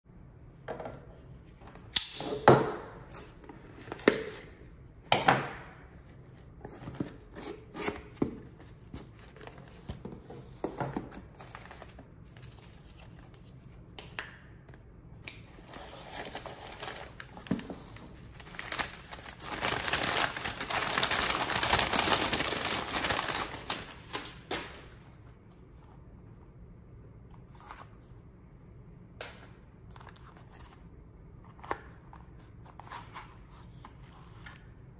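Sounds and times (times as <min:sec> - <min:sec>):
wrapping rustling and tearing: 0:15.6 - 0:24.8.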